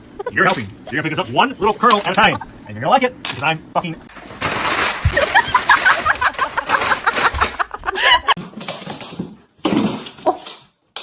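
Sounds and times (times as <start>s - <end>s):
person laughing: 0.0s - 2.8s, 5.1s - 8.4s.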